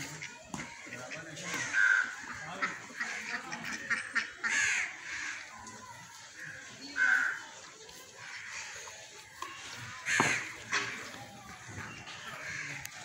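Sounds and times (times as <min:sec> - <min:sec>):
faint outdoor ambience: 0:00.0 - 0:13.0
harsh bird calls: 0:00.5 - 0:05.5.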